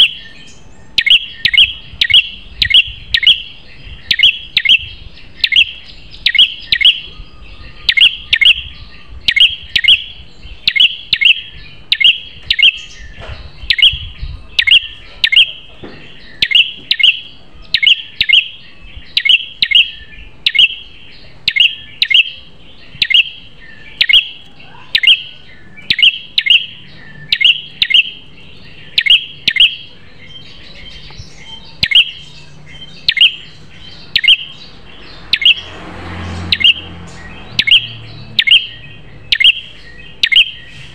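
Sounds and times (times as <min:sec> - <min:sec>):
songbird chirping: 0:00.0 - 0:40.9.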